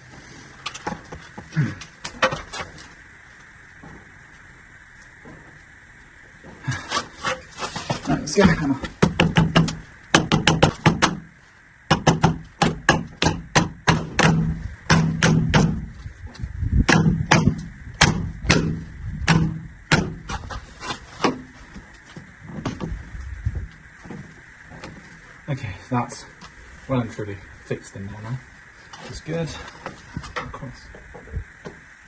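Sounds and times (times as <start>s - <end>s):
hammer blows: 11.9s - 16.0s, 16.8s - 20.6s.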